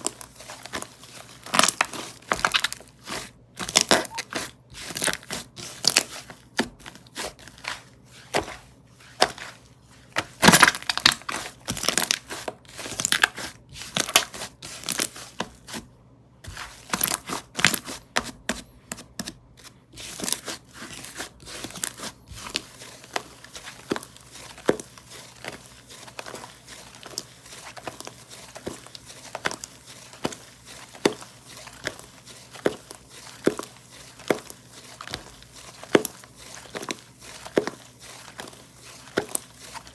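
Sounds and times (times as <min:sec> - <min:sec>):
slime crackling and popping: 0:03.6 - 0:04.2.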